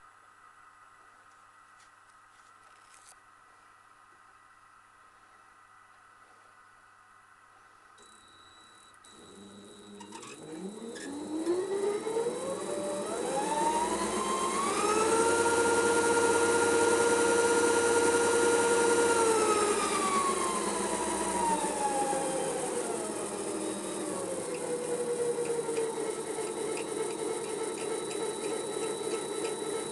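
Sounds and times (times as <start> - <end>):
lathe motor whining: 9.1 - 29.9
clicks: 23.6 - 29.9.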